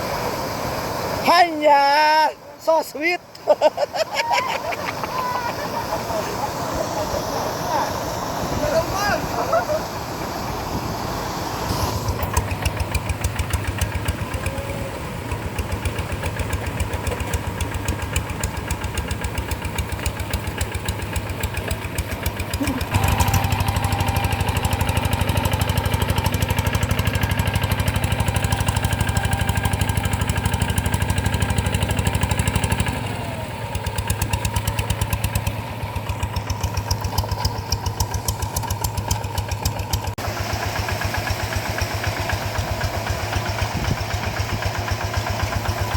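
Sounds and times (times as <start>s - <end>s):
single-cylinder diesel engine running: 5.5s - 45.9s.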